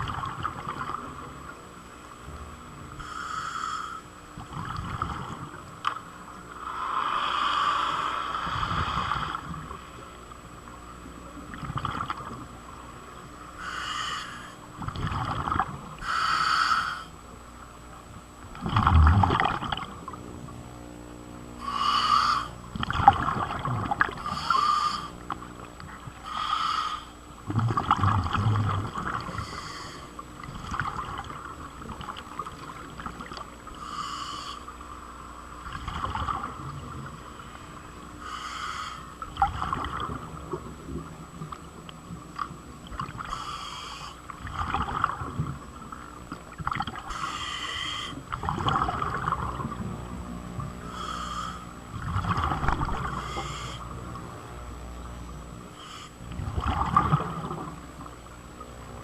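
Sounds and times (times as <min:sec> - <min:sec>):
steady low hum: 0:00.0 - 0:59.0
person breathing underwater: 0:03.0 - 0:04.2, 0:06.6 - 0:09.6, 0:13.6 - 0:14.6, 0:16.0 - 0:17.2, 0:21.6 - 0:22.6, 0:24.2 - 0:25.2, 0:26.2 - 0:27.2, 0:28.6 - 0:30.2, 0:33.7 - 0:34.7, 0:37.6 - 0:40.0, 0:43.2 - 0:44.3, 0:47.0 - 0:48.2, 0:50.8 - 0:51.8, 0:52.4 - 0:53.9, 0:55.7 - 0:56.4
bubbling: 0:04.4 - 0:05.6, 0:11.4 - 0:12.5, 0:14.8 - 0:16.1, 0:18.5 - 0:20.2, 0:22.7 - 0:25.9, 0:27.4 - 0:34.0, 0:35.6 - 0:37.2, 0:39.2 - 0:42.0, 0:44.3 - 0:47.5, 0:48.2 - 0:49.8, 0:51.9 - 0:53.7, 0:56.3 - 0:58.2.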